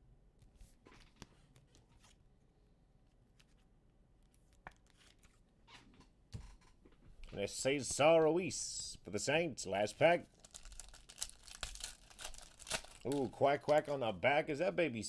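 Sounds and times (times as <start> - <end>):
trading cards rustling: 10.3 - 14.0.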